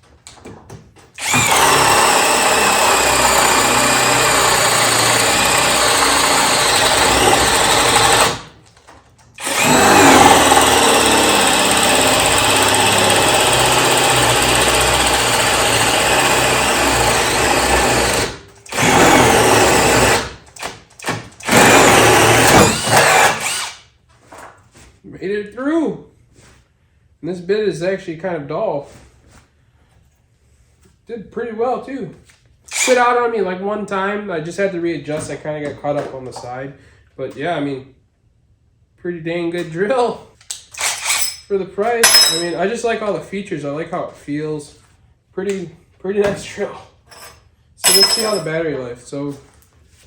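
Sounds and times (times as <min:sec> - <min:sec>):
cordless drill boring wood: 0:01.2 - 0:08.6, 0:09.4 - 0:20.4, 0:21.0 - 0:23.8, 0:32.7 - 0:33.0, 0:40.8 - 0:41.3.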